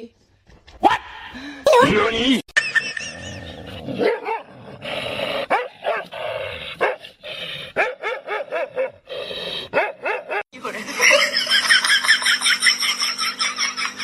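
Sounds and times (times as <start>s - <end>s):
dog barking and yipping: 4.0s - 4.5s, 5.5s - 6.1s, 6.8s - 7.0s, 7.8s - 9.0s, 9.7s - 10.5s.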